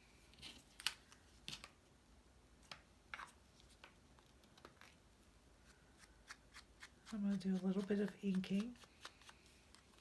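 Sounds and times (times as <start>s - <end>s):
soft paper rustles: 0.2s - 1.8s, 5.6s - 10.0s.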